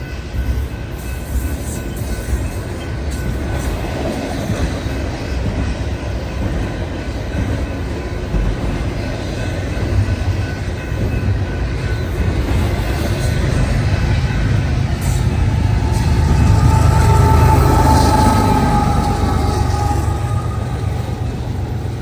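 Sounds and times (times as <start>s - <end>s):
train wheels rumbling on rails: 0.0s - 22.0s
high ringing from wheels: 6.1s - 22.0s.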